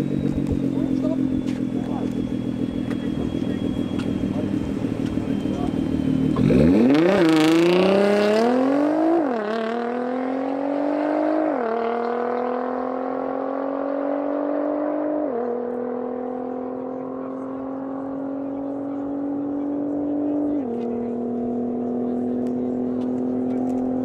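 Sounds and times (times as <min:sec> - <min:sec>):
car engine accelerating hard: 0:00.0 - 0:24.0.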